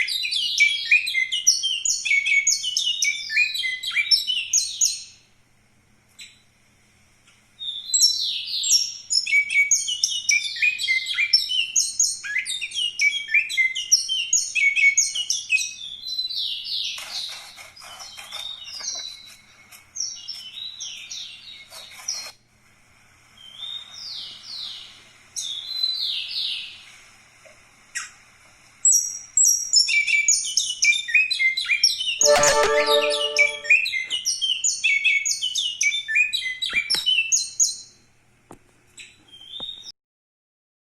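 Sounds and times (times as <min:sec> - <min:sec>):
songbird chirping song: 0:00.0 - 0:05.3, 0:29.0 - 0:34.2.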